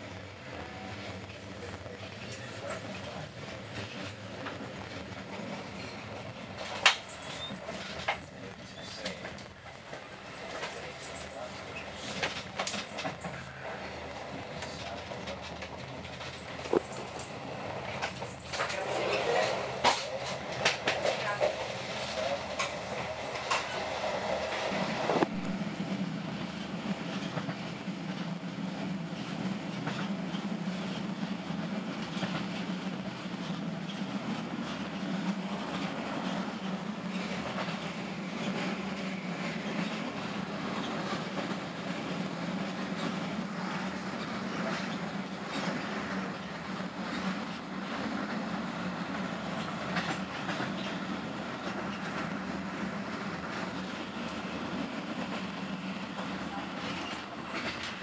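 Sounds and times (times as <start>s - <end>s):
train rumble and hum: 0.0s - 58.0s
wheels clacking over rails: 2.2s - 25.4s.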